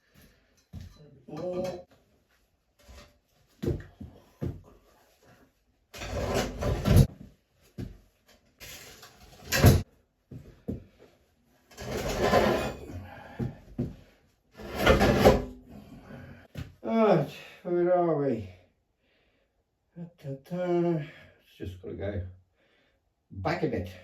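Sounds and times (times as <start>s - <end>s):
lathe scraping across floor: 11.7s - 12.9s, 14.6s - 15.5s.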